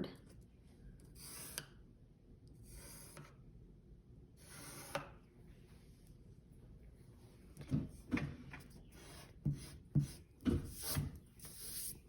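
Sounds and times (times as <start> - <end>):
pencil tapping paper: 9.4 - 11.0.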